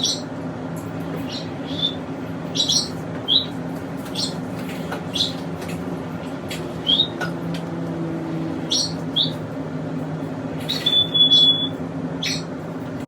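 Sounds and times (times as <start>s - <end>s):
pet birds chirping: 0.0s - 0.3s, 1.1s - 5.8s, 6.4s - 7.3s, 8.6s - 9.5s, 10.6s - 12.6s
steady low hum: 0.0s - 13.0s.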